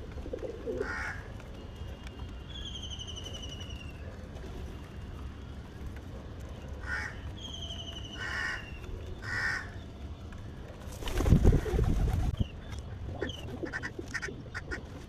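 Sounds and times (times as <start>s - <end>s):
crows cawing: 0.8s - 1.3s, 6.8s - 7.2s, 8.2s - 9.8s.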